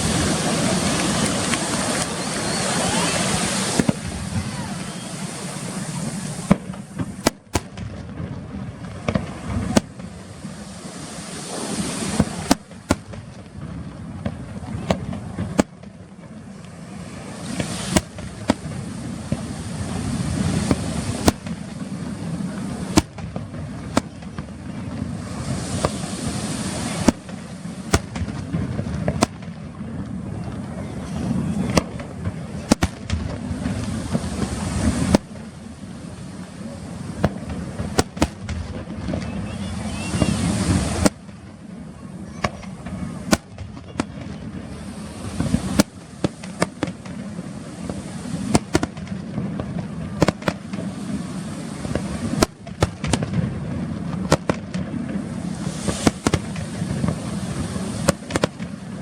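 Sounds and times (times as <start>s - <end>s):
firework shell bursts: 0.0s - 8.1s, 9.0s - 13.5s, 17.4s - 21.9s, 22.8s - 24.6s, 25.2s - 29.6s, 31.7s - 36.4s, 37.0s - 41.5s, 42.3s - 49.3s, 50.2s - 53.4s, 55.5s - 58.8s
continuous noisy rumble: 0.0s - 59.0s.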